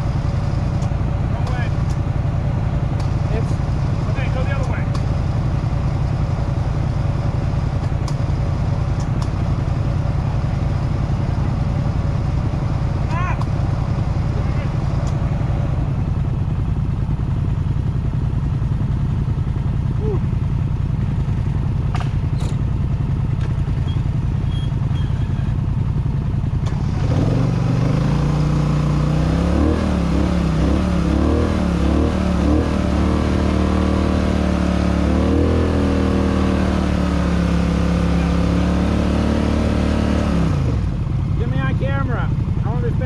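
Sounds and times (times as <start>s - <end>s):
dirt bike engine revving: 26.6s - 42.8s.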